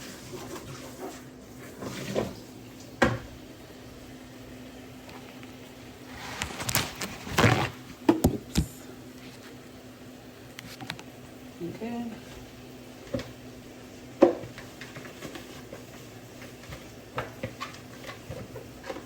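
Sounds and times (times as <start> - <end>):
kitchen knocks and clatter: 3.0 - 3.3, 8.0 - 8.6, 14.2 - 19.0.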